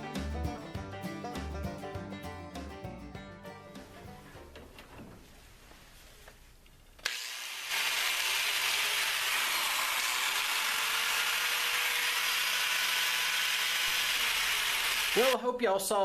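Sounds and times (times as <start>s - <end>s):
angle grinder spinning: 7.0s - 15.4s.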